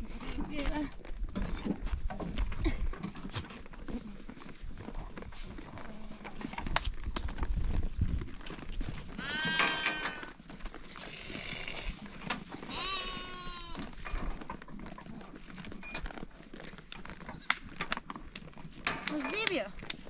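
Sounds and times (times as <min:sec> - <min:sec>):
sheep or goats bleating: 0:09.2 - 0:10.0, 0:12.7 - 0:13.9.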